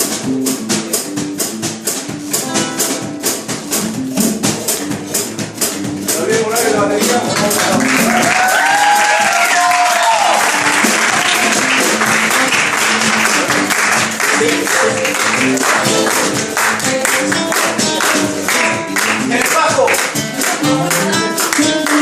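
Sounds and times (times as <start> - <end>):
bass notes: 0.0 - 9.4, 10.1 - 22.0
band playing live: 0.0 - 22.0
percussion rhythm: 0.0 - 22.0
audience clapping and cheering: 7.0 - 22.0.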